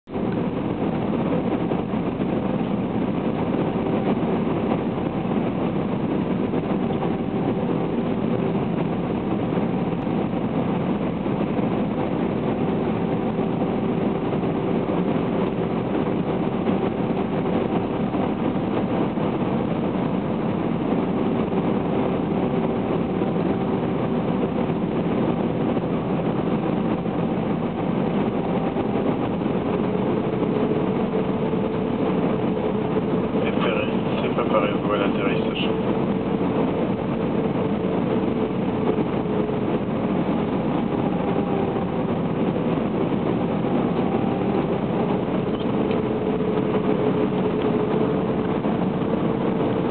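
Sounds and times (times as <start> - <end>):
airliner cabin drone: 0.0 - 49.9.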